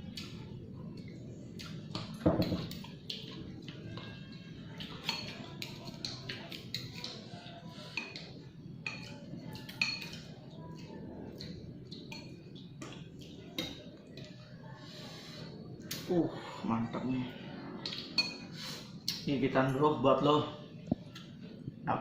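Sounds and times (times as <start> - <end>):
spoon clinking against a bowl: 2.0 - 7.3, 7.9 - 10.4, 11.4 - 14.3, 17.8 - 18.5.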